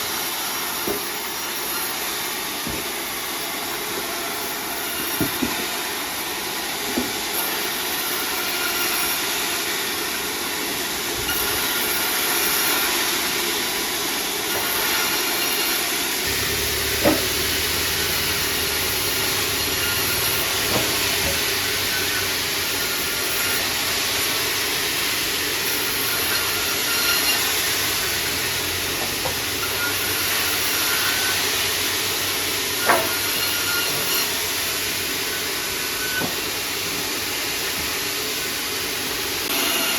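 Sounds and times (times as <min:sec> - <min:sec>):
saw blade hissing through wood: 0:00.0 - 0:39.9
low machine hum: 0:16.2 - 0:27.0.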